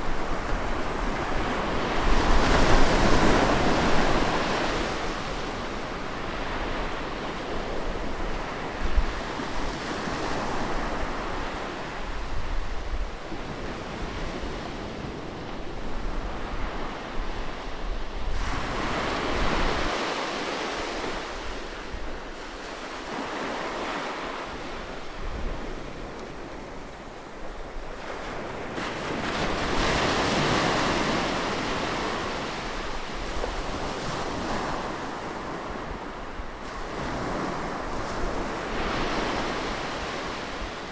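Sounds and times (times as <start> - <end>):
waves breaking on shore: 16.3 - 40.9.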